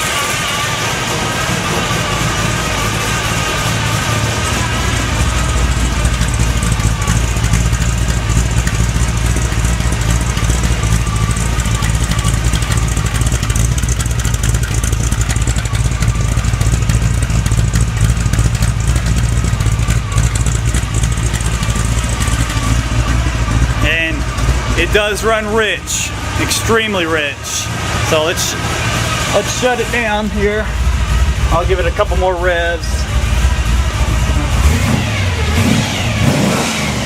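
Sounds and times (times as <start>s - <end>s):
car engine running: 0.0s - 37.0s
gear whine: 0.0s - 37.0s.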